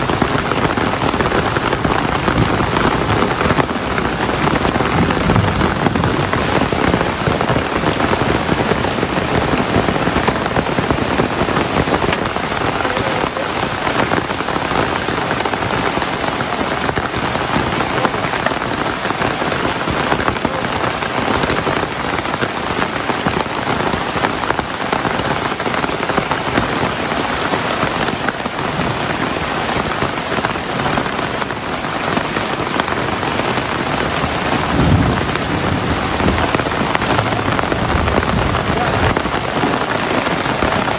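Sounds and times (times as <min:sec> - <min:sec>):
heavy rain falling: 0:00.0 - 0:40.9
low thud: 0:04.9 - 0:07.2.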